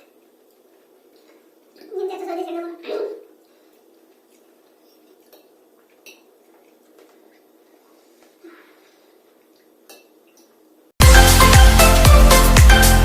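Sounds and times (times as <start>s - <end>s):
cutlery clinking on plates: 4.8s - 6.3s, 9.9s - 10.2s.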